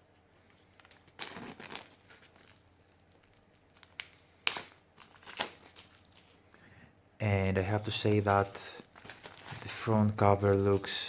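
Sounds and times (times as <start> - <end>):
case rustling and crinkling: 1.1 - 6.4, 8.0 - 11.0.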